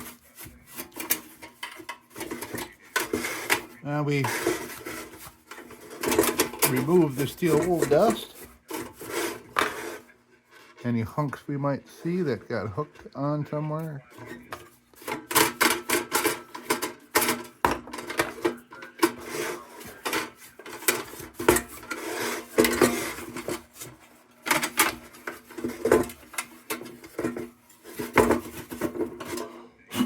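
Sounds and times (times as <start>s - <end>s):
scraping strokes on metal: 0.0s - 10.7s, 19.0s - 30.0s.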